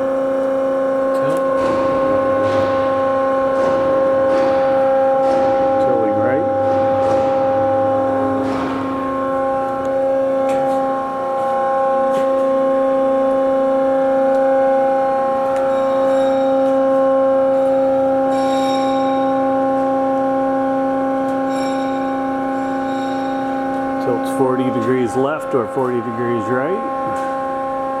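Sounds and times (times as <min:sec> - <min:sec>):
bandsaw whining: 0:00.8 - 0:13.4.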